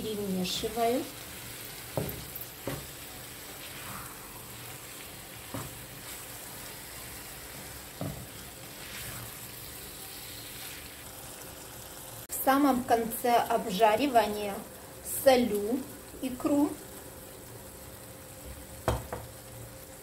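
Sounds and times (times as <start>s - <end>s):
vegetables sizzling in a frying pan: 0.0s - 20.0s
spatula stirring: 1.6s - 11.1s.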